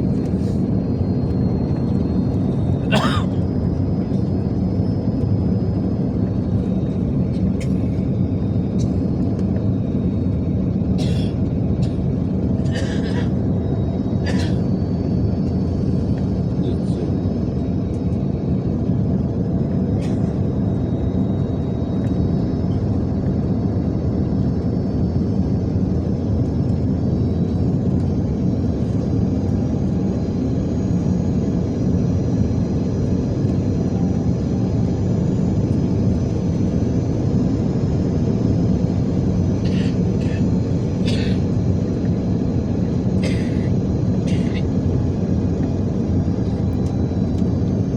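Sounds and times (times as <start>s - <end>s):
engine and airflow rumble: 0.0s - 47.9s
faint high whine: 12.8s - 47.9s.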